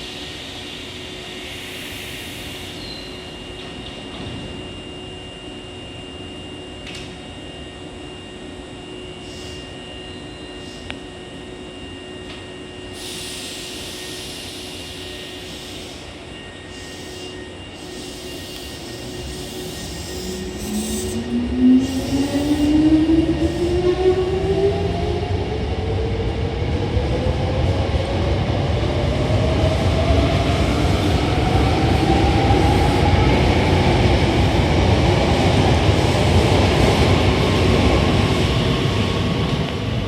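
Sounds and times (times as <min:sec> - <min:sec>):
electric train motor whine: 0:00.0 - 0:27.5.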